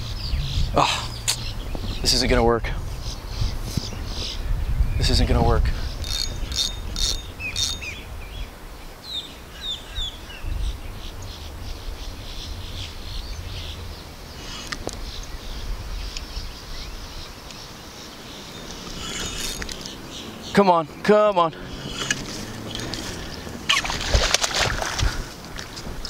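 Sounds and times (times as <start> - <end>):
low rumble: 0.0 - 5.8
birds chirping: 0.0 - 26.0.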